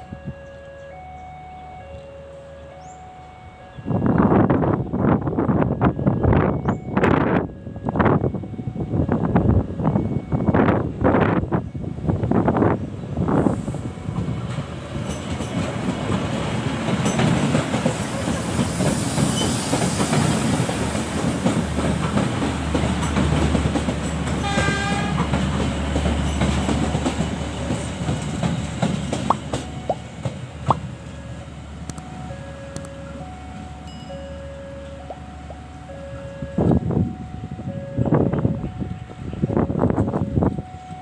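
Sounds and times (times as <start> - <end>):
diesel train engine drone: 0.0 - 41.0
wheels rumbling on rails: 0.0 - 41.0
wind buffeting microphone: 3.7 - 31.0, 35.1 - 41.0
train horn blast: 24.4 - 25.4.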